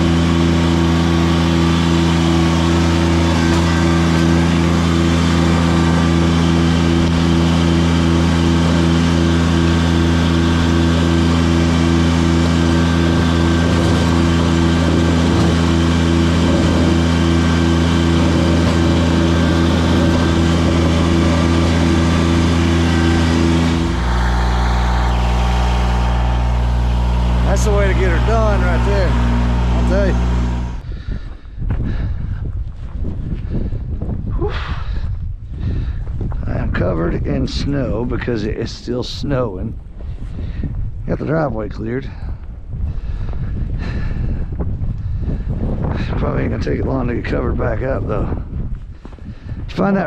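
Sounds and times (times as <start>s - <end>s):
tractor engine running: 0.0s - 34.2s.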